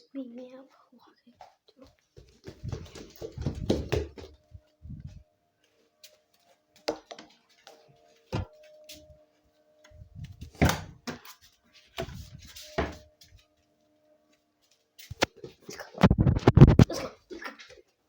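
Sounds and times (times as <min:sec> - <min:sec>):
faint steady tones: 0:04.4 - 0:15.3
thumps: 0:16.0 - 0:17.0.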